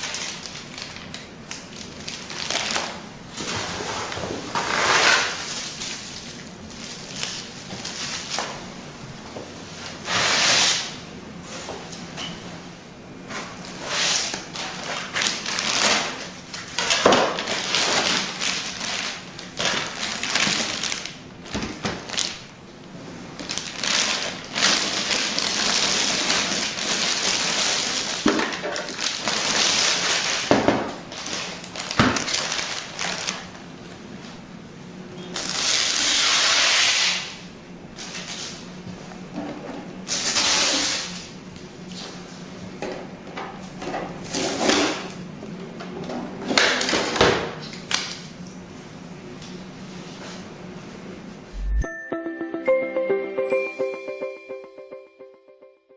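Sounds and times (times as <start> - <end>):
cardboard and plastic rustling: 14.6 - 22.4.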